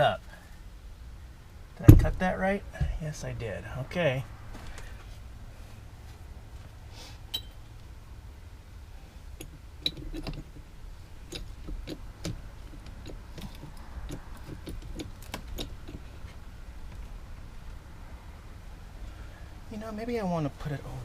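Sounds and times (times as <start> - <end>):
hydraulic jack metallic clicks: 11.3 - 16.0.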